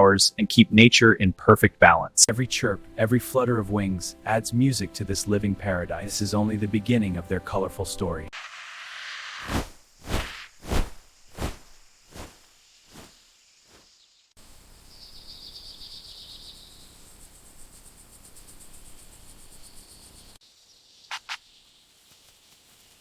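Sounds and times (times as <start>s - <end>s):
insects trilling: 8.4s - 23.0s.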